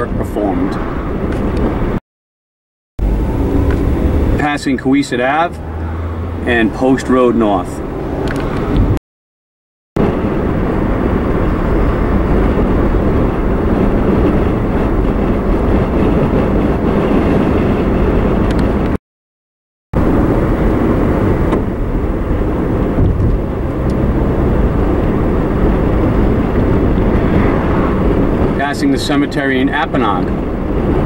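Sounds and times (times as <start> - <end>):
car engine and tyre noise: 0.0 - 2.0, 3.0 - 9.0, 10.0 - 19.0, 20.0 - 31.0.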